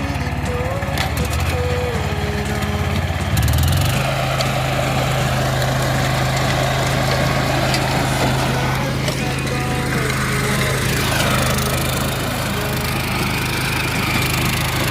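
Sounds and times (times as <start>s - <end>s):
cultivator small engine running: 0.0s - 14.9s.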